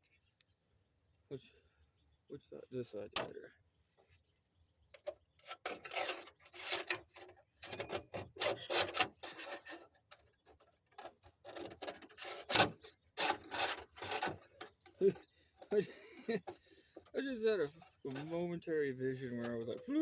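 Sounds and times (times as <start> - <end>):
hands rubbing and scraping: 17.1 - 18.5.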